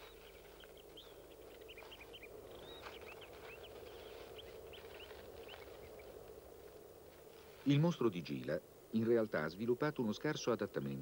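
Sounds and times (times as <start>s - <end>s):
small birds chirping: 0.0s - 6.2s.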